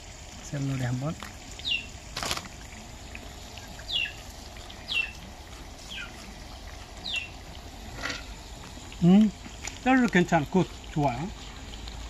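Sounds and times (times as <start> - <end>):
vegetables frying in oil: 0.0 - 12.0
small bird chirping: 1.6 - 1.9, 3.8 - 4.2, 4.8 - 5.2, 5.9 - 6.2, 7.0 - 7.4.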